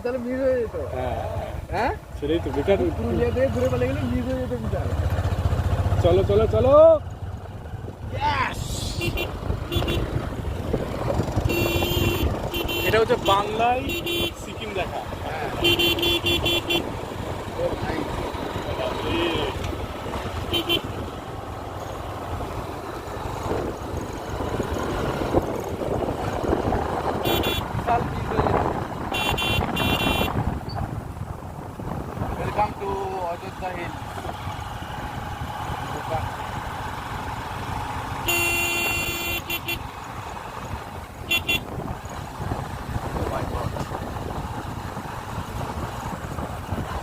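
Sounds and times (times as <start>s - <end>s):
road and wind rumble: 0.0s - 47.0s
vehicle horn honking: 8.9s - 10.1s, 11.4s - 14.4s, 15.6s - 16.9s, 20.5s - 20.9s, 27.2s - 27.7s, 29.1s - 30.4s, 38.2s - 39.8s, 41.3s - 41.7s
motorbike engine running: 9.0s - 14.3s.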